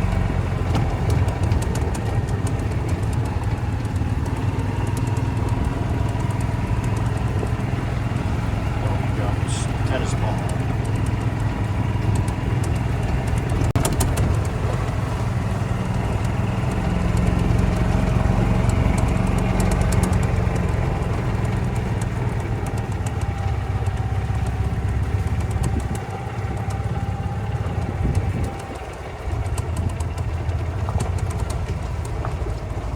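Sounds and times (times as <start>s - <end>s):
golf cart running: 0.0s - 32.9s.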